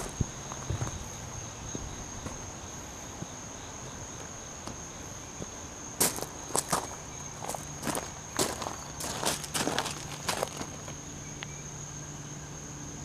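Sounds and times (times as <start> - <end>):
crickets trilling: 0.0 - 13.0
footsteps: 5.4 - 11.0.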